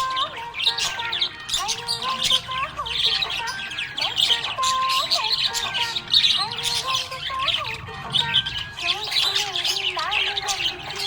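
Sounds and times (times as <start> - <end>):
budgerigar chattering: 0.0 - 11.0.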